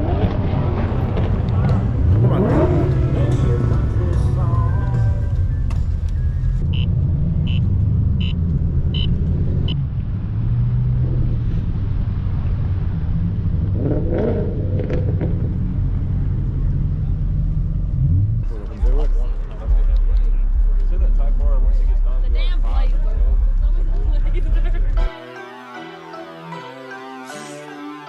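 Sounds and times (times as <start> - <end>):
car engine rumbling: 0.0 - 25.2
short high beeps: 9.0 - 9.2.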